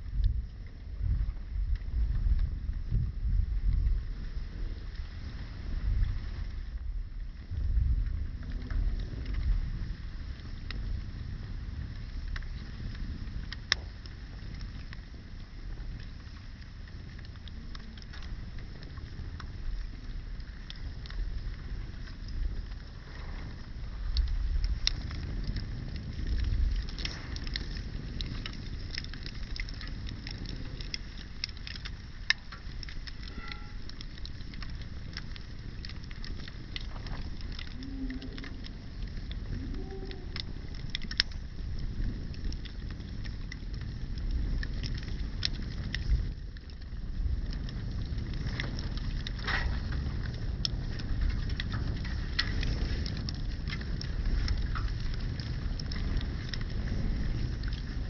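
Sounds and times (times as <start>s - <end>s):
wind rumble on microphone: 0.0s - 58.0s
wood fire crackling and popping: 0.0s - 58.0s.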